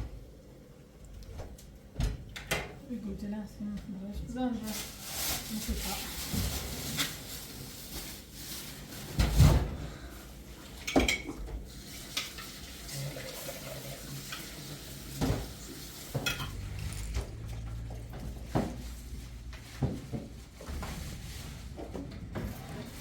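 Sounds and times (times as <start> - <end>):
dishes and cutlery clinking: 10.8 - 11.5, 15.2 - 17.2.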